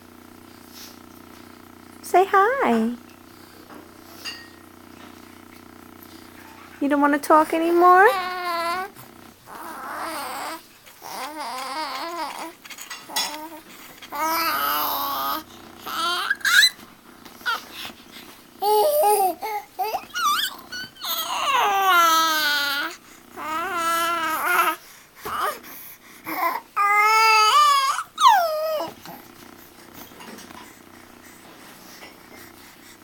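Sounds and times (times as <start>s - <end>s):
baby babbling: 8.1s - 16.8s, 18.6s - 25.6s, 26.3s - 29.2s.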